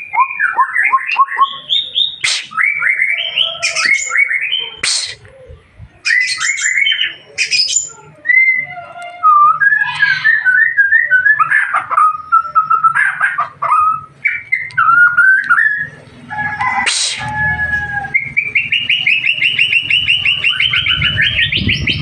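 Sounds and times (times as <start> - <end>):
bird singing whistled phrases: 0.0 - 5.2, 6.0 - 13.0, 13.8 - 16.0.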